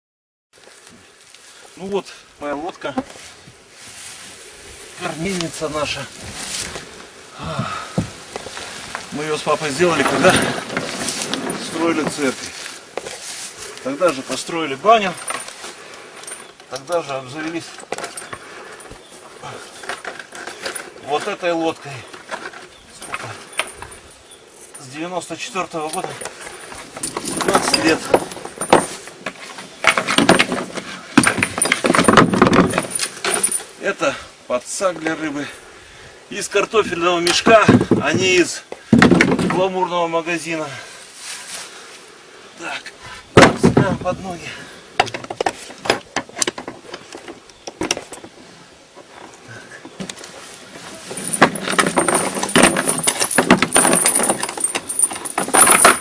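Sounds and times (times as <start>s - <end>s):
gear rustling and clinking: 8.3s - 33.8s, 49.0s - 56.0s
gear clattering in wooden boat: 9.2s - 12.4s, 25.8s - 33.7s, 37.3s - 39.7s, 50.8s - 56.0s.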